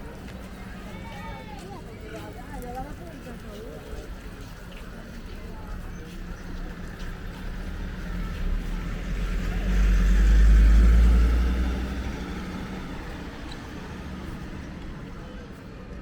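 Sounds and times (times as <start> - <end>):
vehicle engine rumble passing: 5.8 - 16.0.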